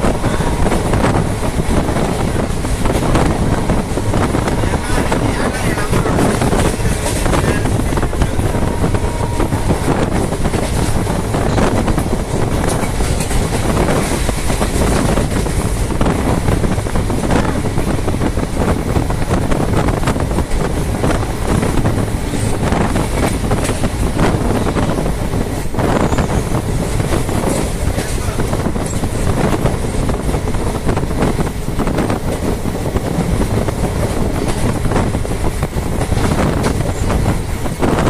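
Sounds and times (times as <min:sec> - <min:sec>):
train wheels rumbling on track: 0:00.0 - 0:38.0
wheels clicking over rail joints: 0:10.1 - 0:18.0.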